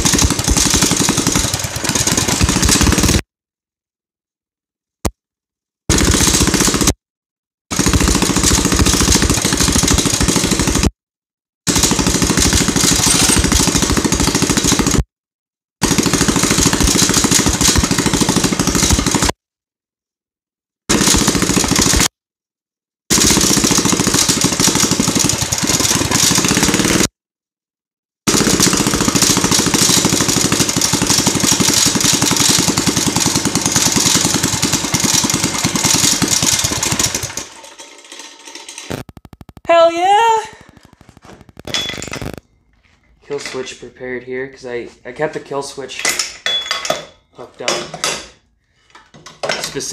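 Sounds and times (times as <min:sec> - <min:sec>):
mini bike engine running loud: 0:00.0 - 0:03.2, 0:07.7 - 0:10.9, 0:15.8 - 0:19.3, 0:23.1 - 0:27.1, 0:28.3 - 0:39.0.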